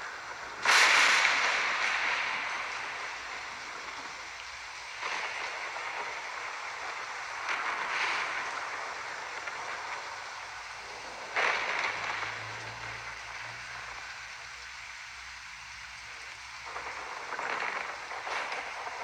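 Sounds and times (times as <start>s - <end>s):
thunderclap: 0.0s - 10.3s
rain falling: 0.0s - 19.0s.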